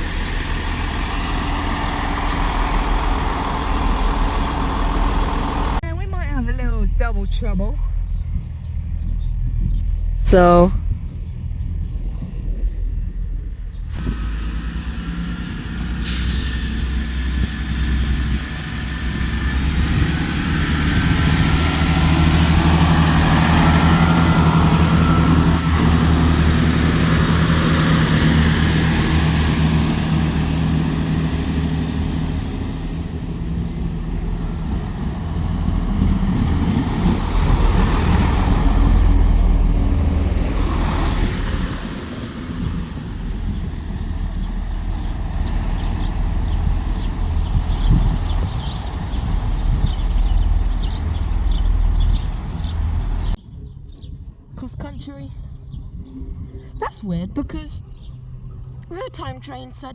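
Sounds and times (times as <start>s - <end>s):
train wheels on rails: 0.0s - 5.8s, 13.9s - 53.4s
train engine drone: 0.0s - 11.9s, 13.6s - 53.4s.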